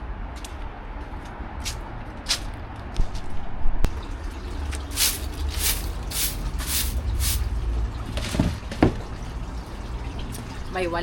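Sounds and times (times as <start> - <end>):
stiff broom sweeping leaves: 4.8 - 7.5.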